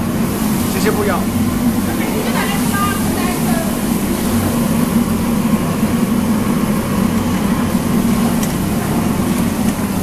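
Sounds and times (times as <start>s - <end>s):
kitchen equipment humming: 0.0s - 10.0s.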